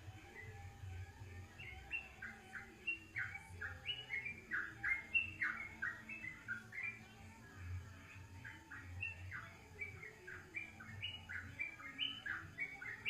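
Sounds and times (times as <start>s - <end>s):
faint low hum: 0.0s - 13.0s
songbird singing: 0.0s - 13.0s.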